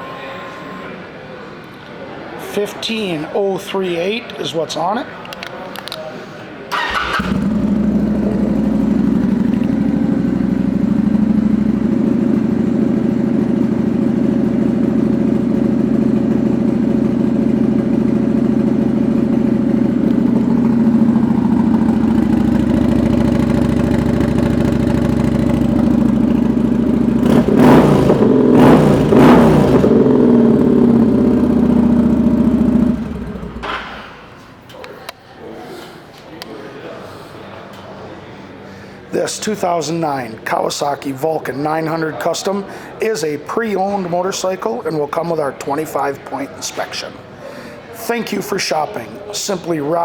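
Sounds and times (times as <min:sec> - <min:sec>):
motorcycle engine revving: 0:06.7 - 0:34.0
motorcycle engine starting and idling: 0:06.7 - 0:34.3.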